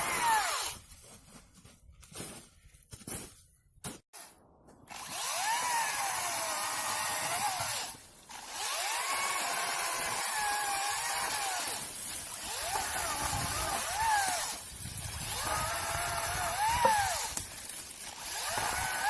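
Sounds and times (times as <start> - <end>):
electric chainsaw cutting wood: 0.0 - 0.8, 4.9 - 19.0.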